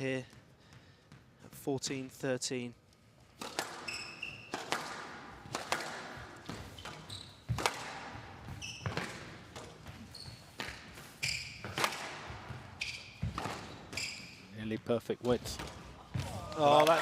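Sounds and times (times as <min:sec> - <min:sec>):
shoes squeaking on court floor: 0:03.2 - 0:04.8, 0:05.4 - 0:17.0
squash ball cracking off racquets: 0:03.3 - 0:14.1.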